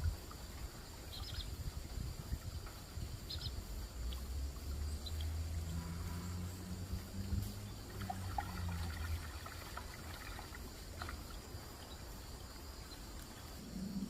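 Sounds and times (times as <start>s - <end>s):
insect drone: 0.0s - 14.0s
low rumble hum: 3.0s - 10.7s.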